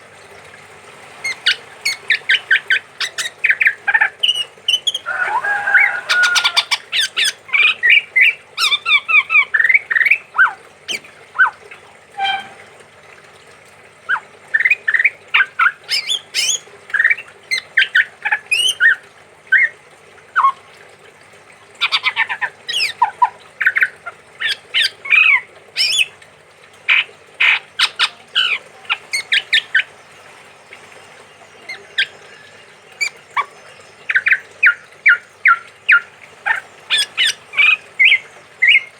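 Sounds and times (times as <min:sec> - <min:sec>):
bird calling short sharp notes: 0:10.4 - 0:12.7.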